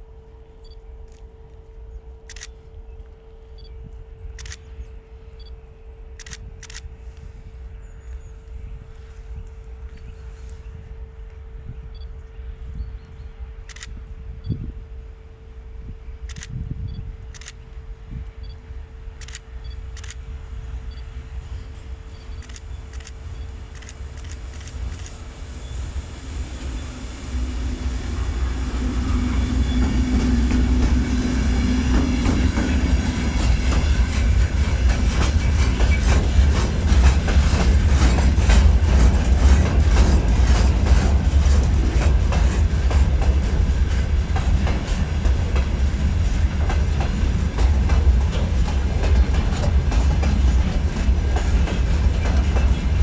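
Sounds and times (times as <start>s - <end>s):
train rumbling past: 0.0s - 53.0s
wheels clickety-clack on rails: 22.1s - 25.5s, 28.8s - 53.0s.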